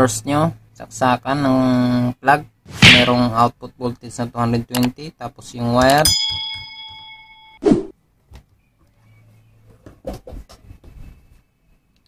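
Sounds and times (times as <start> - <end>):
bell chime: 6.0 - 7.6.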